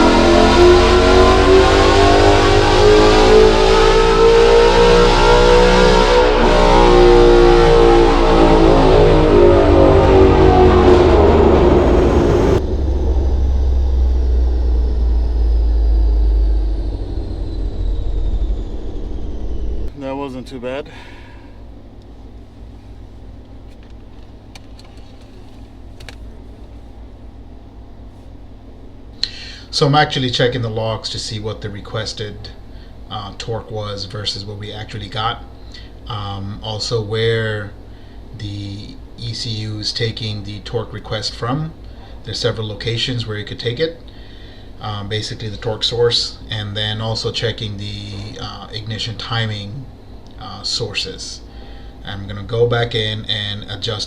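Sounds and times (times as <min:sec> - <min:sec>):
car engine revving under load: 0:00.0 - 0:30.7.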